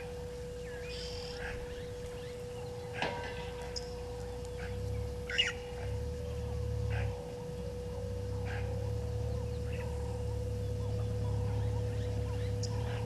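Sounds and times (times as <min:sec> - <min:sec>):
low background rumble: 0:00.0 - 0:13.0
thin hum: 0:00.0 - 0:13.0
wild birds calling: 0:00.0 - 0:13.0.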